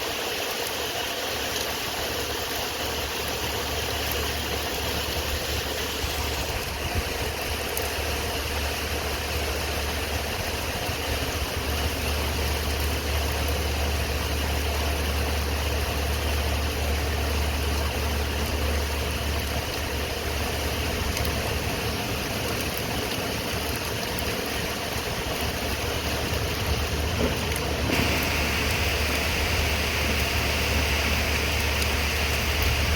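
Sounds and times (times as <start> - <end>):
car engine and road rumble: 2.9 - 32.9
even hiss: 27.7 - 32.9.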